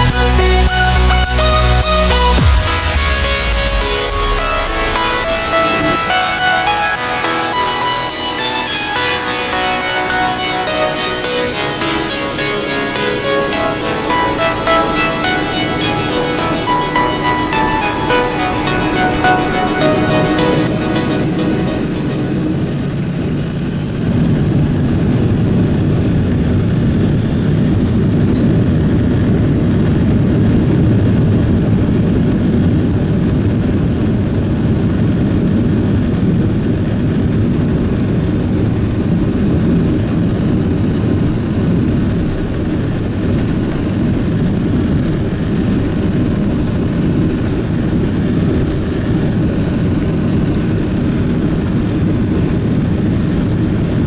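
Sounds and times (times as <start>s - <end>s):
aircraft cabin engine rumble: 18.8s - 54.0s.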